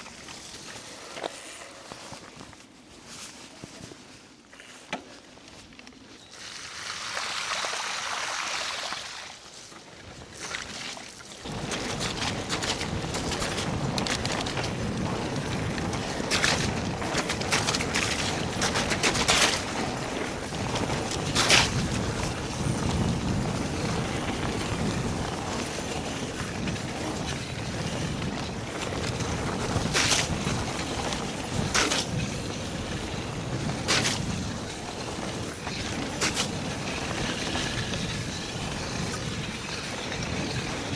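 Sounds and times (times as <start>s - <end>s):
bike knocking and rattling: 11.4s - 40.9s
bike tyres rushing on trail: 11.4s - 40.9s.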